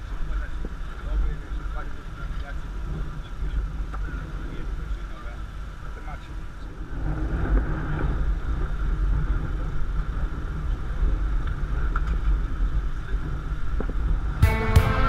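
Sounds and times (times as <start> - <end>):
low outdoor rumble: 0.0 - 15.0
guitar music: 14.4 - 15.0.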